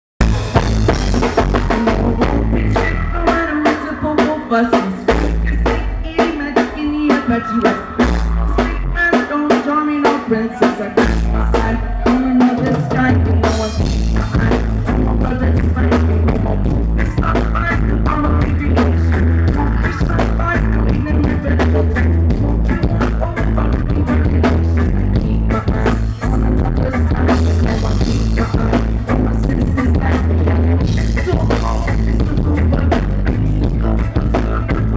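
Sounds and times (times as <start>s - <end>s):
drum kit beat: 0.2s - 34.9s
live rock band playing: 0.2s - 34.9s.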